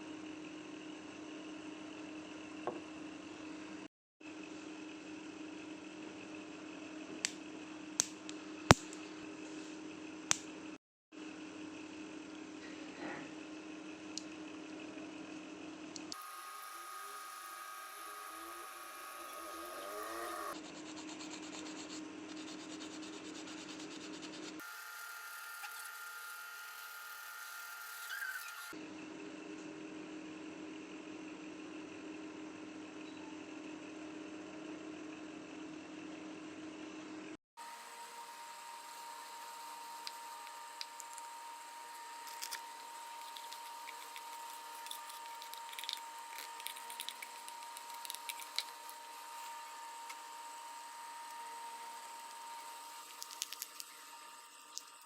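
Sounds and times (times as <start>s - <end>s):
thin high hum: 16.0s - 28.7s, 37.6s - 55.0s
rubbing and filing on metal: 19.4s - 24.6s, 42.3s - 49.5s.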